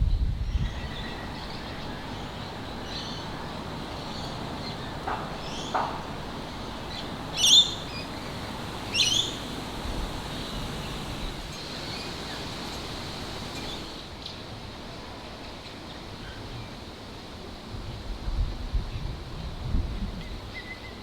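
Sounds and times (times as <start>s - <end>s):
outdoor background hiss: 0.0s - 18.8s
fainter lower bird calls: 7.3s - 14.1s
sharp bird calls: 7.3s - 14.1s.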